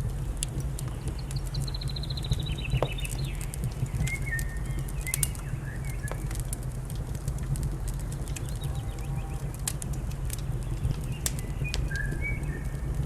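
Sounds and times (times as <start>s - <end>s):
wood fire crackling and popping: 0.0s - 13.0s
small bird singing: 0.9s - 6.4s, 8.2s - 9.6s, 10.5s - 12.9s.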